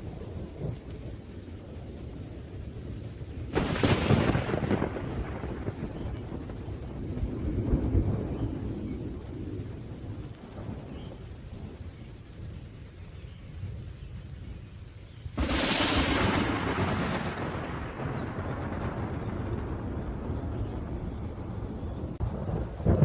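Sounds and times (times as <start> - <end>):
low thunder rumbling: 0.0 - 23.0
rain: 0.0 - 23.0
sharp thunderclap: 3.5 - 11.1, 15.4 - 23.0.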